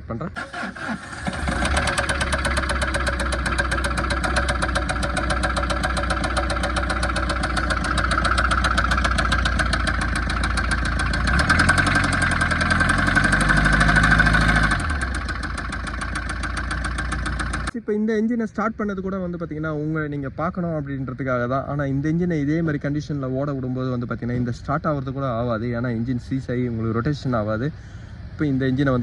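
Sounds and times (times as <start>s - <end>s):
diesel engine knocking: 1.2s - 17.8s.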